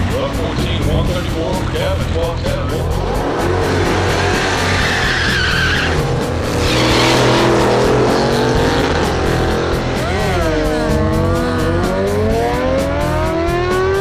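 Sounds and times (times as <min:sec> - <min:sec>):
car engine revving: 0:00.0 - 0:14.0
tires squealing: 0:00.0 - 0:14.0.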